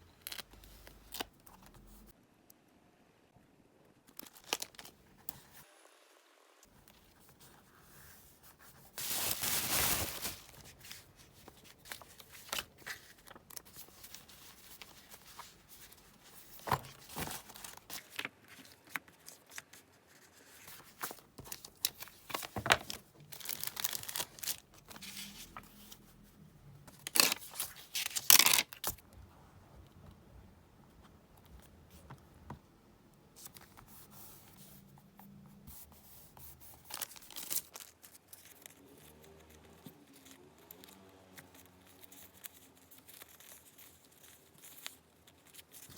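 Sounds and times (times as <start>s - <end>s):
paper rustling: 6.8s - 26.1s, 26.9s - 29.0s, 35.7s - 45.9s.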